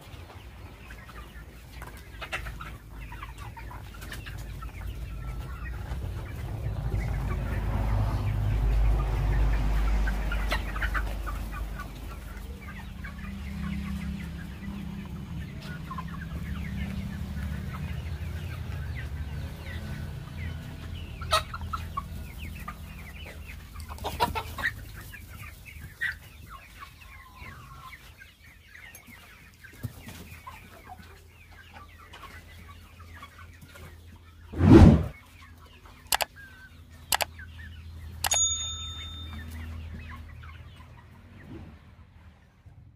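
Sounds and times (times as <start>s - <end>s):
chickens clucking and calling: 0.0s - 42.8s
low rumble: 34.5s - 35.2s.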